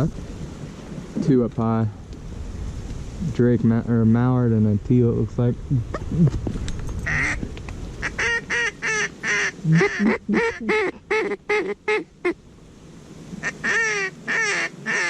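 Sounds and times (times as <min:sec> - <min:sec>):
duck quacking rapidly: 0:07.1 - 0:07.4, 0:08.0 - 0:12.4, 0:13.4 - 0:15.0.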